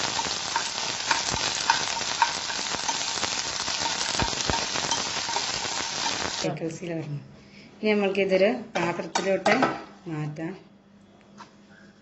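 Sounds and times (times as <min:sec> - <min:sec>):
spoon stirring in pan: 0:00.0 - 0:06.4
raisins sizzling in hot fat: 0:00.0 - 0:06.5.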